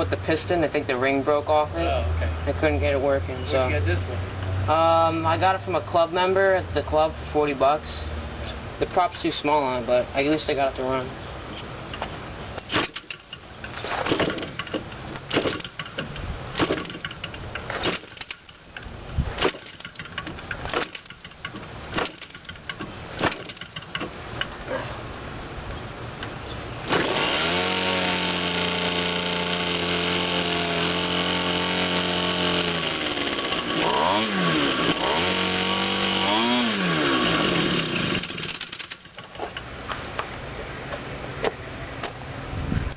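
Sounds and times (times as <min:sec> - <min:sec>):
engine flipped by hand knocking: 0:12.0 - 0:18.8, 0:19.4 - 0:24.5.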